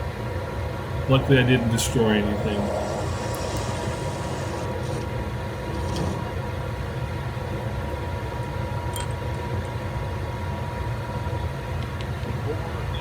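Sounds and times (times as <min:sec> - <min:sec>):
metal lathe running: 0:00.9 - 0:07.0.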